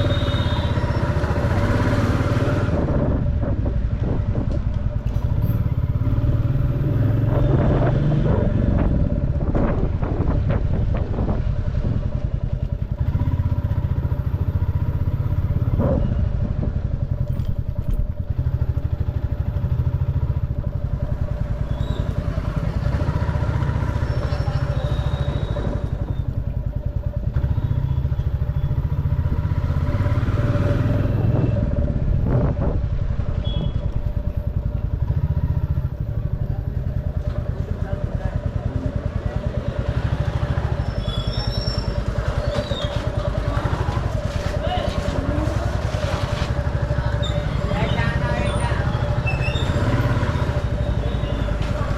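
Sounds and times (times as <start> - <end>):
motorcycle engine running: 0.0 - 51.9
street traffic: 0.0 - 51.9
knocks and clicks from road: 3.4 - 5.9, 17.1 - 18.3, 41.3 - 47.0, 51.4 - 51.9.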